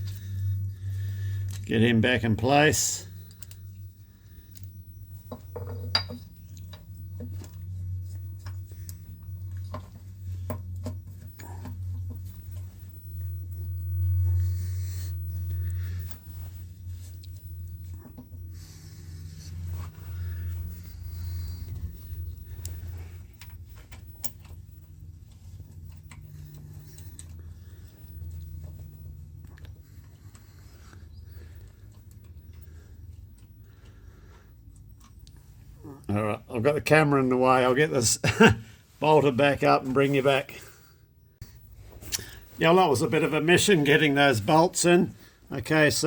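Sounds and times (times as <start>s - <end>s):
steady low hum: 0.0s - 46.0s
metal parts clinking: 1.5s - 3.8s, 4.4s - 6.9s.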